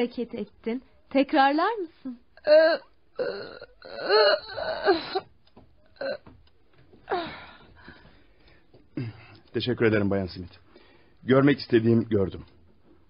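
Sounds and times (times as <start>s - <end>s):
woman gasping: 2.4s - 5.3s, 7.0s - 8.5s
woman moaning: 2.4s - 5.3s, 6.0s - 6.3s, 7.1s - 7.7s.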